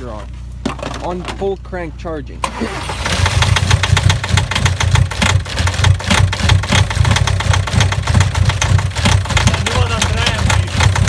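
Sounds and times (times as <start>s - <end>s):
diesel engine knocking: 2.9s - 11.0s.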